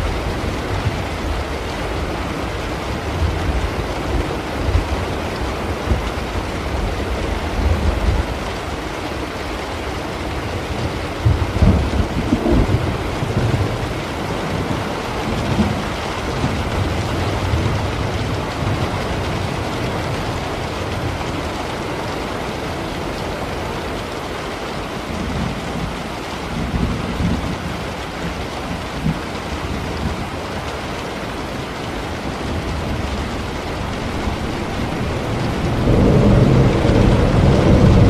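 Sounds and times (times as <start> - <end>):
rainfall: 0.0 - 38.0
rolling thunder: 11.2 - 19.1, 32.2 - 38.0.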